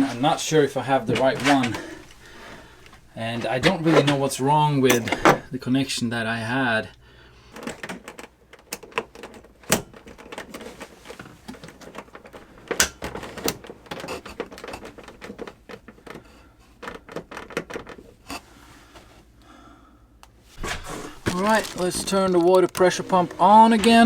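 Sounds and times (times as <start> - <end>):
clicks and taps of plumbing tools: 11.5 - 18.4.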